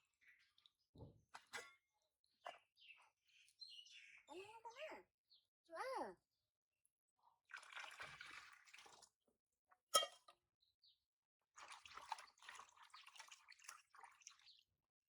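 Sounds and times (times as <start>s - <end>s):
water splashing and dripping: 7.5s - 9.1s, 11.6s - 14.6s.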